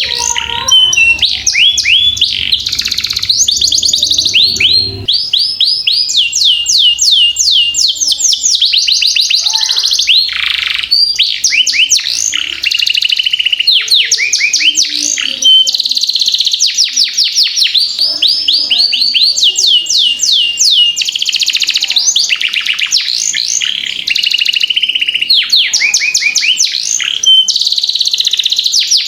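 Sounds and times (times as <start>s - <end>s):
canary singing fast trills: 0.0s - 29.0s.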